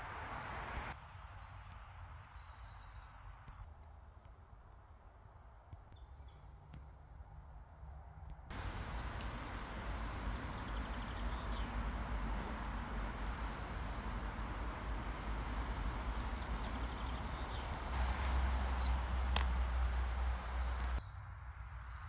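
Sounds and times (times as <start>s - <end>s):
small birds chirping: 6.0s - 22.0s
steady low rushing noise: 8.5s - 21.0s.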